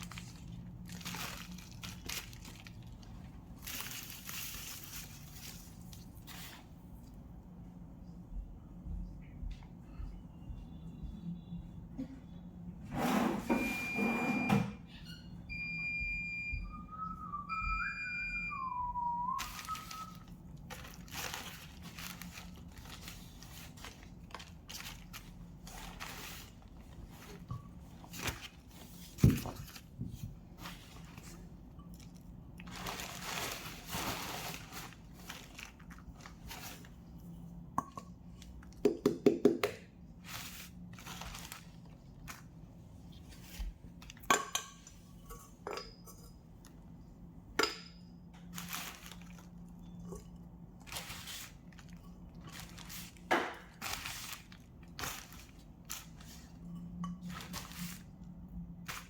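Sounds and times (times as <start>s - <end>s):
objects being handled: 18.5s - 39.6s, 48.4s - 58.2s.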